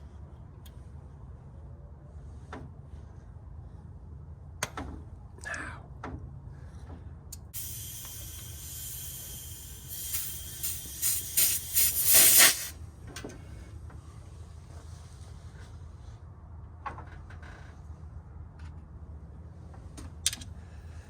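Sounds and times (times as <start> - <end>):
hiss with loud spurts: 7.6 - 12.8.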